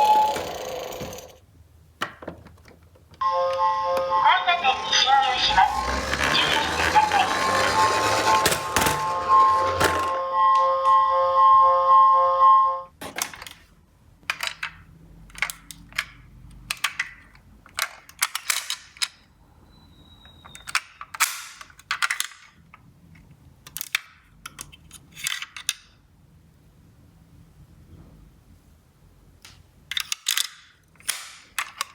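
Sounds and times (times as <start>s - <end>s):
toy cars clattering: 0.0s - 1.4s, 5.6s - 10.2s, 14.3s - 19.2s, 20.5s - 25.9s, 29.9s - 31.9s
steady electronic tone: 3.2s - 12.7s.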